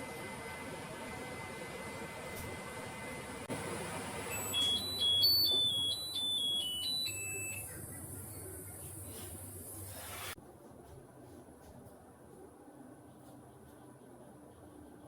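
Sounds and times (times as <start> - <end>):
microwave chime tune: 4.1 - 8.6.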